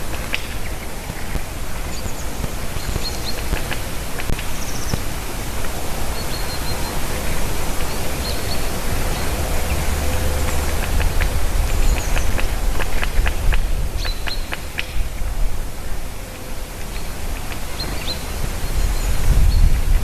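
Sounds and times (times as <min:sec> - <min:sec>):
small birds chirping: 0:00.0 - 0:20.0
wind noise on microphone: 0:00.0 - 0:20.0
low rumble: 0:05.2 - 0:20.0.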